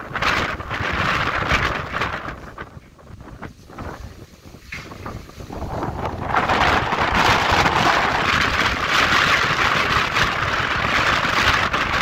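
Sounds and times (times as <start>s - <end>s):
train passing close by: 5.2s - 12.0s.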